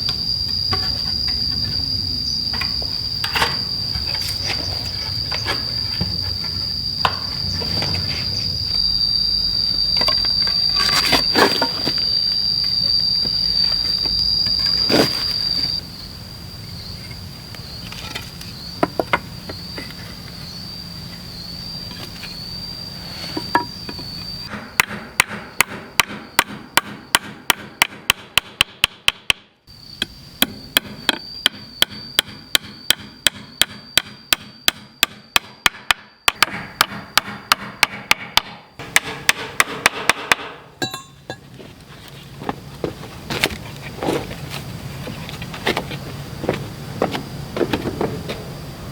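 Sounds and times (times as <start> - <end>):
insects shrilling: 0.0 - 24.6, 29.7 - 34.3
sharp strikes on wood: 24.5 - 29.5, 30.4 - 40.7.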